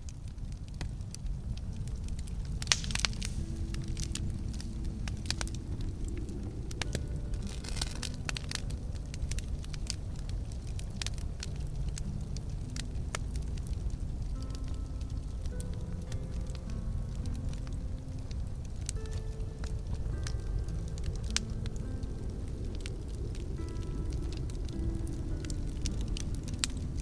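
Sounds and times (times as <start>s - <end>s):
campfire crackling and popping: 0.0s - 27.0s.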